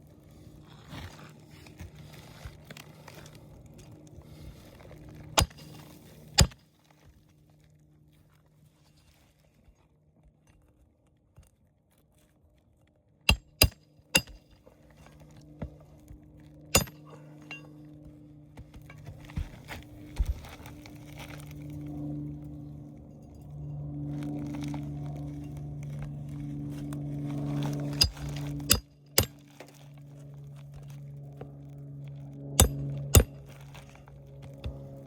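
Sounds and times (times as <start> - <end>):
metallic hammer strikes on nails: 5.4 - 5.7, 13.3 - 14.4, 16.8 - 17.6, 28.0 - 29.4, 32.6 - 33.3.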